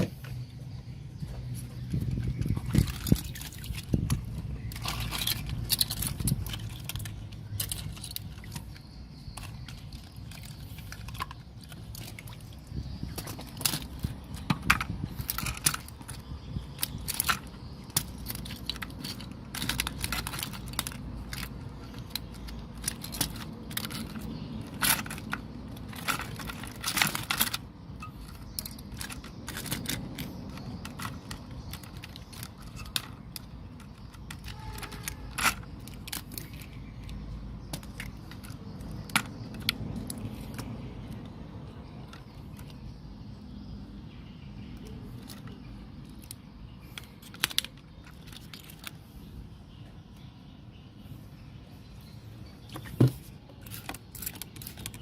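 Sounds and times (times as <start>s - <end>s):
small tools clicking and scraping: 1.3s - 43.8s, 44.6s - 50.3s, 52.5s - 55.0s.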